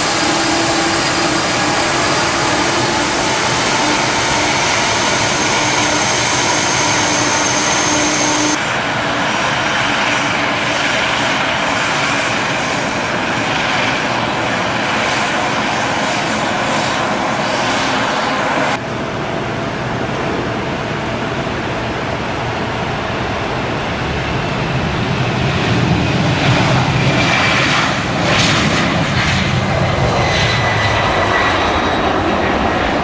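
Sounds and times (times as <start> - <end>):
high steady whine: 0.0 - 10.5
aircraft engines running: 0.0 - 33.0.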